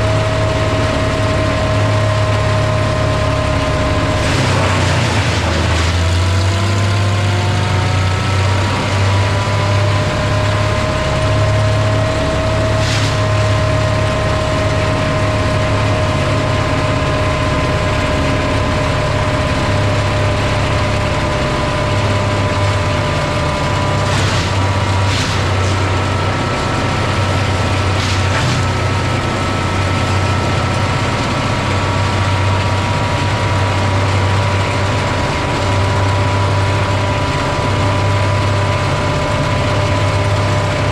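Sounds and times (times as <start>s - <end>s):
woodchipper engine drone: 0.0s - 40.9s
sharp cracks: 24.0s - 25.9s.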